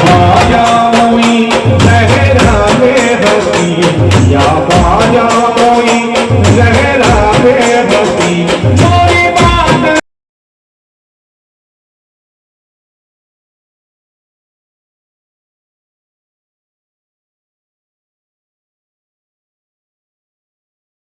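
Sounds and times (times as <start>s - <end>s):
steady drum beat: 0.0s - 10.0s.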